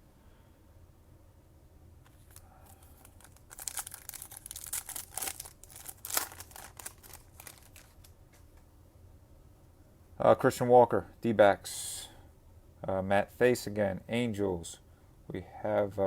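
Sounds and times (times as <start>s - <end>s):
foil wrapper tearing and crinkling: 2.1s - 8.2s.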